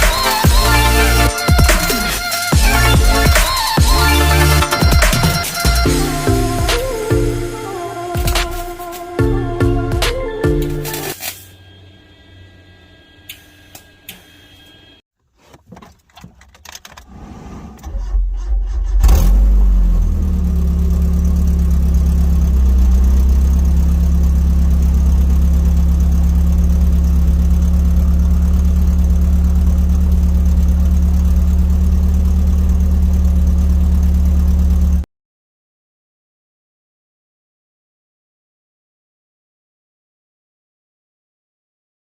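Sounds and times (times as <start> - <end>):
engine revving: 0.0 - 7.5, 17.2 - 35.0
car engine cranking and idling: 15.2 - 35.0.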